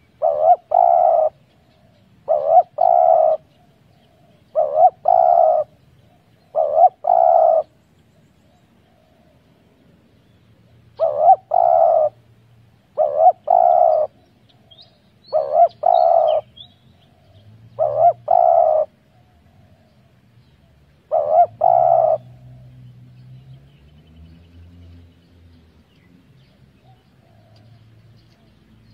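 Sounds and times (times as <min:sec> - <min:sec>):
dove cooing: 0:00.0 - 0:07.8, 0:10.9 - 0:12.3, 0:12.9 - 0:22.8, 0:26.8 - 0:28.5.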